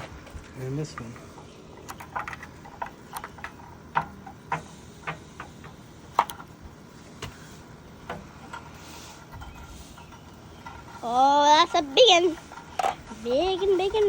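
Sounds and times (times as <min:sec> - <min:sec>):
sharp clicks and light knocks: 0:00.0 - 0:06.6.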